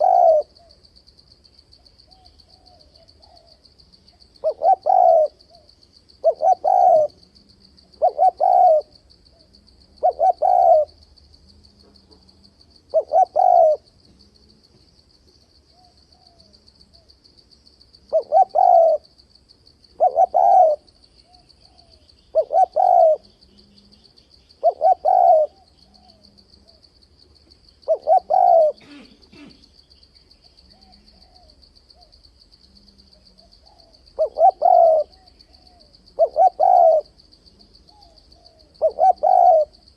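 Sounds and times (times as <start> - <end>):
dove cooing: 0.0 - 0.8, 2.0 - 11.0, 11.8 - 13.9, 18.1 - 19.1, 19.9 - 26.8, 27.8 - 29.7, 30.6 - 32.2, 32.8 - 39.9.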